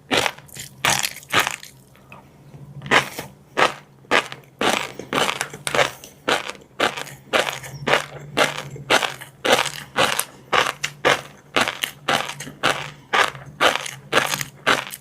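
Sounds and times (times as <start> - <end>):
crunchy chewing: 0.1 - 2.0, 2.9 - 15.0.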